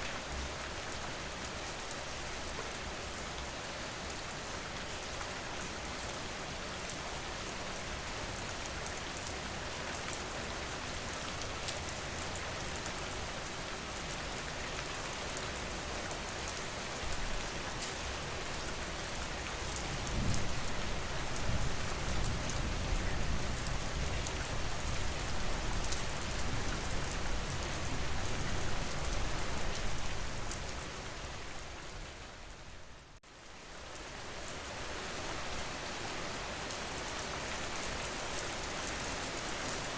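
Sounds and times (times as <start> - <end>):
rain pattering: 6.8 - 32.6.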